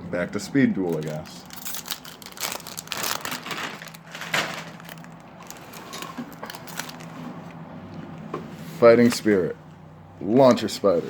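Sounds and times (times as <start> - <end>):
foil wrapper tearing and crinkling: 0.8 - 7.1.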